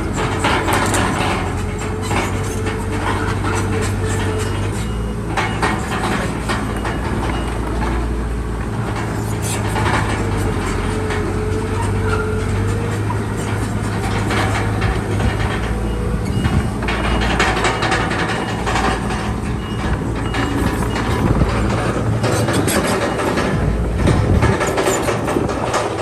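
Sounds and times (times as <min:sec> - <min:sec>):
bulldozer diesel engine running: 0:00.0 - 0:26.0
metallic clanking of steel tracks: 0:00.0 - 0:26.0.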